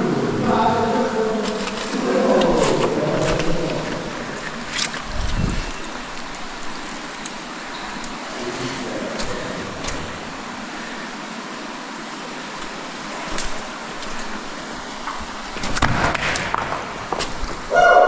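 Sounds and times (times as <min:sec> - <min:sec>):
underground stream rushing: 0:00.0 - 0:18.0.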